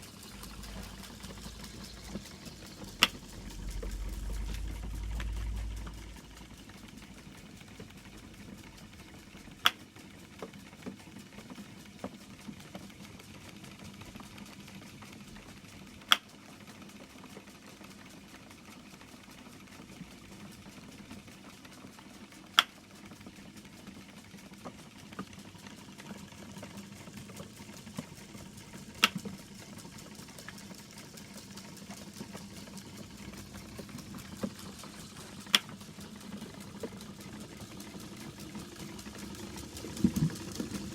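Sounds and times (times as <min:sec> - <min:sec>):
mechanical whir: 0:00.0 - 0:09.7, 0:26.1 - 0:40.9.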